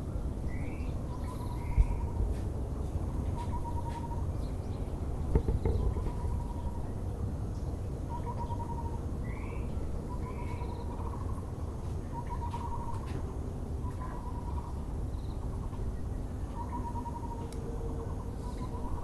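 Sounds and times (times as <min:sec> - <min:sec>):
low background rumble: 0:00.0 - 0:19.0
bird chirps: 0:08.1 - 0:11.3, 0:12.1 - 0:13.1.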